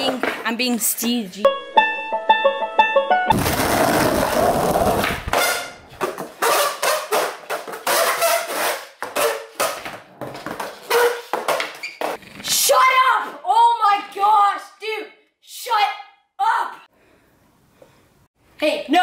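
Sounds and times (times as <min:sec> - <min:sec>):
skateboard wheels rolling on concrete: 0:03.3 - 0:12.2.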